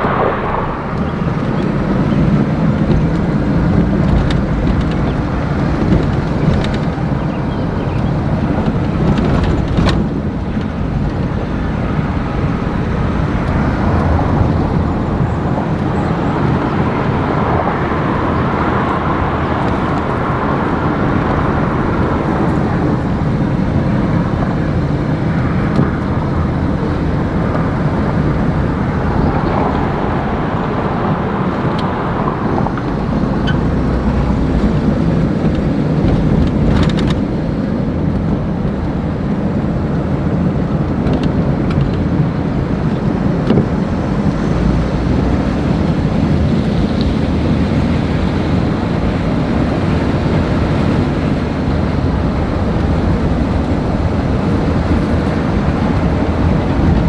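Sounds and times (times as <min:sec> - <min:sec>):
motor vehicle rumbling: 0:00.0 - 0:57.0.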